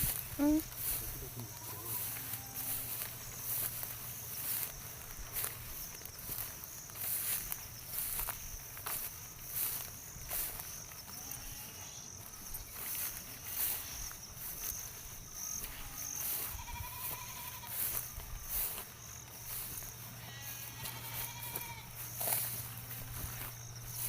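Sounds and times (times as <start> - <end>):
high insect drone: 0.0 - 24.0
livestock bleating: 1.3 - 2.9, 11.1 - 12.1, 15.6 - 18.0, 20.1 - 22.0.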